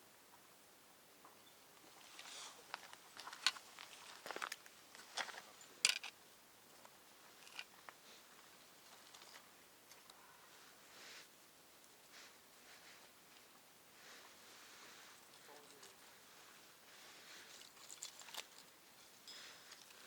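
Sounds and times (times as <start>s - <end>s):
clicks and rustles of handling: 1.8s - 8.0s, 8.8s - 10.2s, 15.1s - 16.0s, 17.3s - 20.0s.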